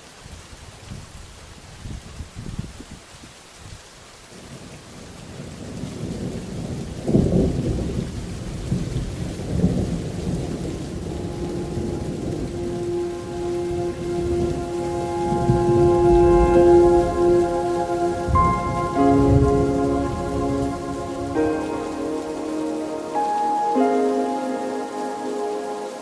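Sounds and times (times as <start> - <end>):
steady rain: 0.0 - 26.0
rolling thunder: 5.6 - 23.1
sustained music notes: 11.0 - 26.0.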